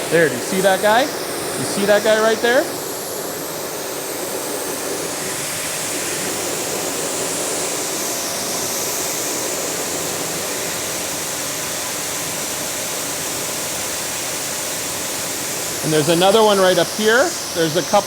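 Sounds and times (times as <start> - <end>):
pressure washer spraying: 0.0 - 18.0.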